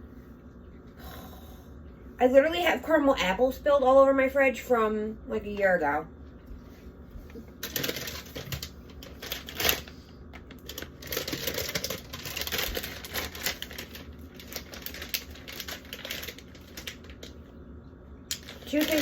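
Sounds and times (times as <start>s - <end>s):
plastic packaging being handled: 7.4s - 17.4s, 18.3s - 19.0s.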